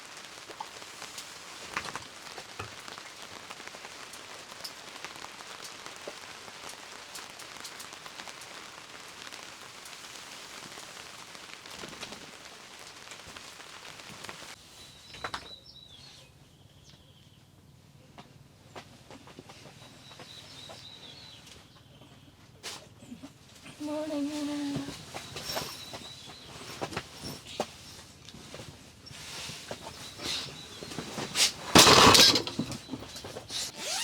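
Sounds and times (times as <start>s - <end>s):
rain drops ticking on a surface: 0.0s - 14.6s, 23.3s - 33.3s.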